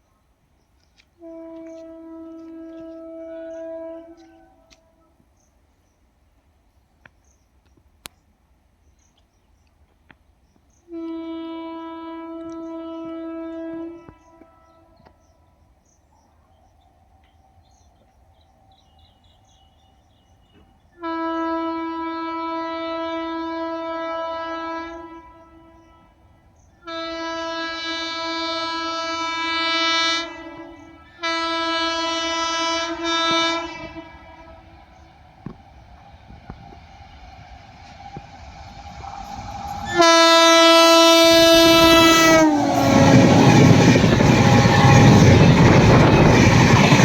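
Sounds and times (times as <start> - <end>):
locomotive horn blasts: 1.2 - 5.1, 10.9 - 15.1, 21.0 - 35.6, 38.9 - 47.0
train rumble: 16.7 - 47.0.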